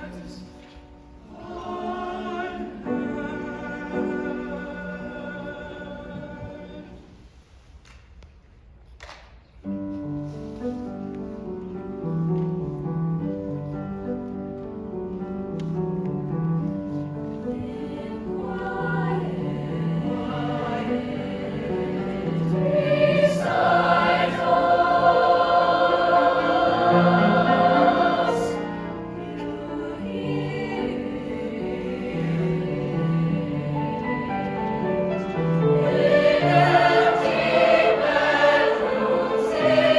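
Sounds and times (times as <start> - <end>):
choir singing sustained chords: 0.0 - 7.3, 17.5 - 39.9.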